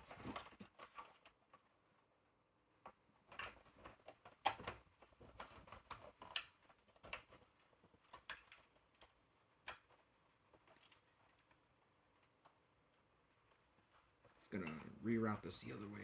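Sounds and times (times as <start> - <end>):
faint clicks taps and rustles of wires: 0.0 - 16.0.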